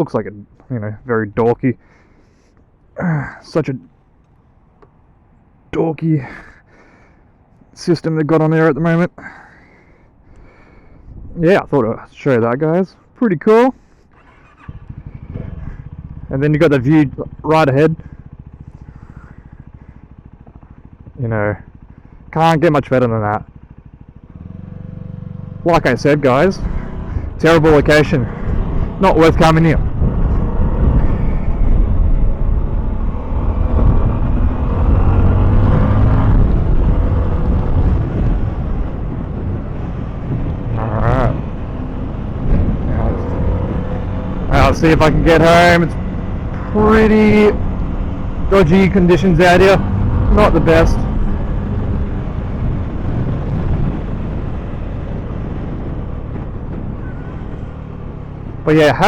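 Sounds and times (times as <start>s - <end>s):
wind rumbling on microphone: 10.6s - 12.0s, 14.6s - 16.4s, 26.6s - 58.8s
motorcycle engine running: 13.8s - 59.0s.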